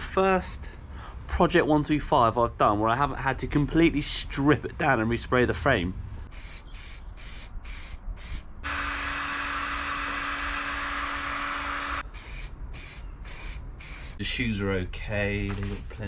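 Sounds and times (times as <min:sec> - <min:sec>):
aerosol spray bursts: 0:06.3 - 0:08.5, 0:12.0 - 0:14.2.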